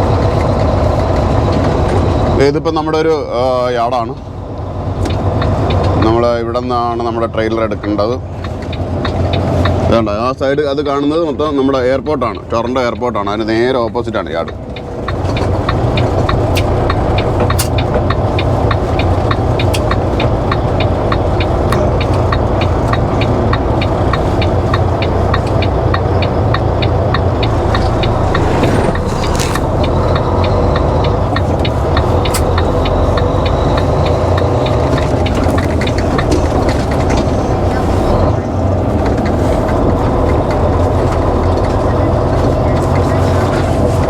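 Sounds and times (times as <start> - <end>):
diesel truck engine running: 0.0 - 44.0
light regular ticking: 5.0 - 6.2, 8.4 - 10.0, 14.4 - 38.0.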